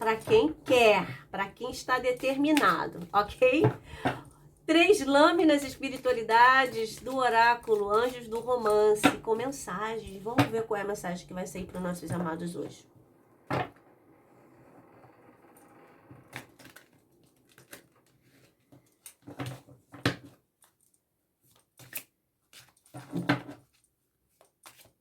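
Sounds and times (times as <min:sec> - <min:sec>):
cards being shuffled: 0:20.6 - 0:23.1, 0:23.7 - 0:25.0.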